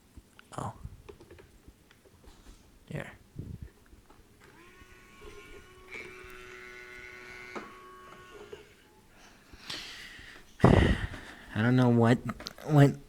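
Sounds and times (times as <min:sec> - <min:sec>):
thin steady electronic buzzing tone: 0:04.4 - 0:09.1.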